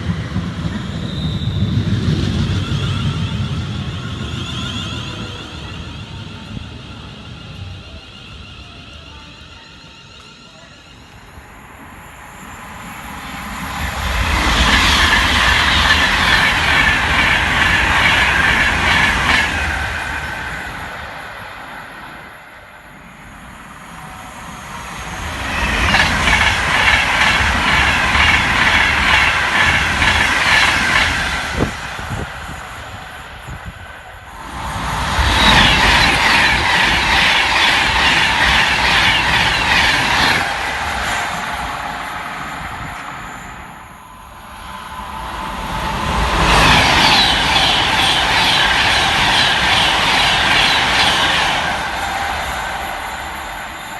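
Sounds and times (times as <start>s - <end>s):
high-speed trains passing: 0.0s - 53.9s.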